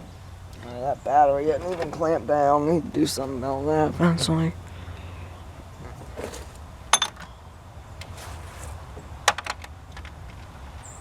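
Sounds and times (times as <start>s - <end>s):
low steady hum: 0.0s - 11.0s
clicks of handling engine parts: 9.2s - 10.5s.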